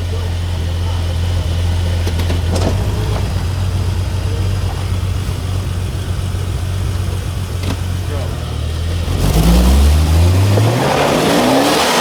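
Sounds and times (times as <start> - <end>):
car engine droning at low speed: 0.0 - 12.0.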